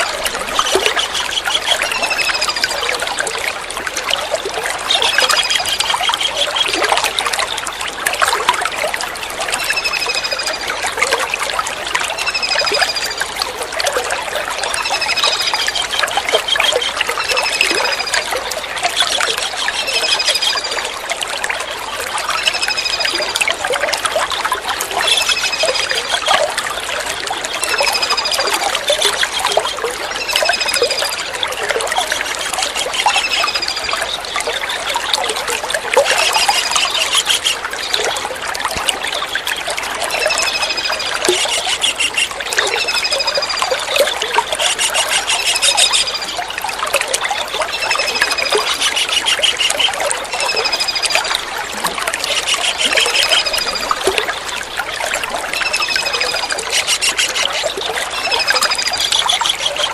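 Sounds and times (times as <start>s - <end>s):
water trickling: 0.0s - 59.9s
bird chattering: 40.3s - 43.1s, 44.6s - 46.2s.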